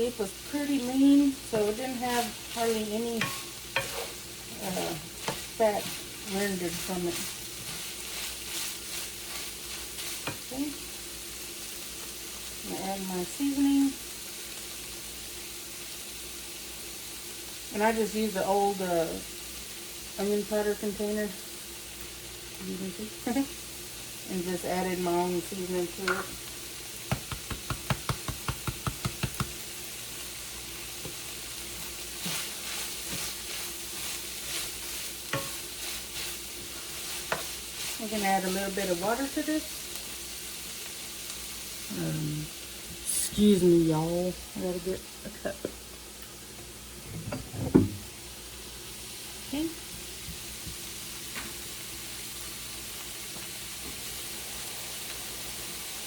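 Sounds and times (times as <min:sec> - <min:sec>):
meat and onions sizzling: 0:00.0 - 0:56.0
stirring scrapes in pan: 0:00.6 - 0:10.9, 0:30.7 - 0:39.4.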